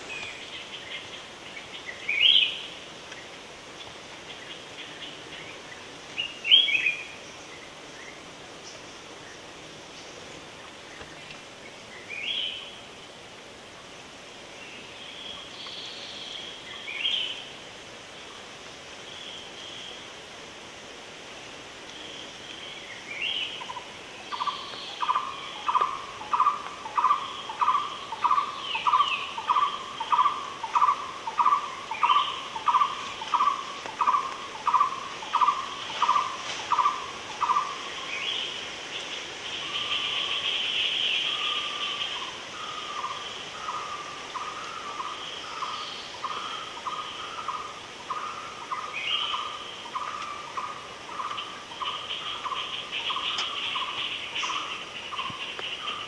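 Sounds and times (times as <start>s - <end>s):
birds chirping and trilling: 22.0s - 56.0s.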